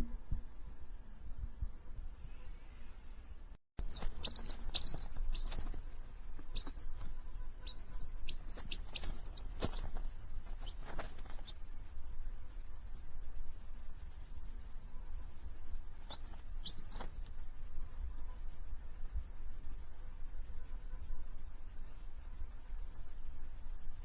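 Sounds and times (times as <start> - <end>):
steady low rumble: 0.0 - 24.0
small bird chirping: 3.8 - 11.8, 14.8 - 18.4.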